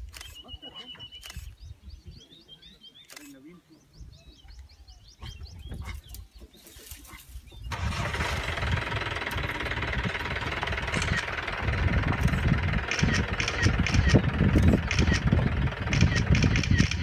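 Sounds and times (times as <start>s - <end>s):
vehicle engine starting and running: 7.6s - 17.0s.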